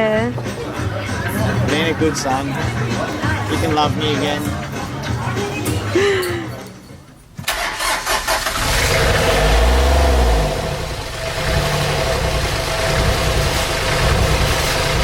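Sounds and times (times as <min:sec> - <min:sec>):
engine starting and humming: 0:07.4 - 0:15.0.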